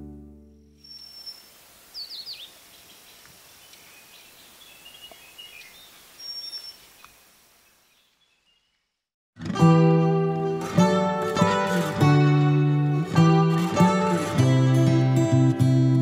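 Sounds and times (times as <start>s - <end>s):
steady outdoor hiss: 0.8s - 8.8s
birds chirping: 0.8s - 9.0s.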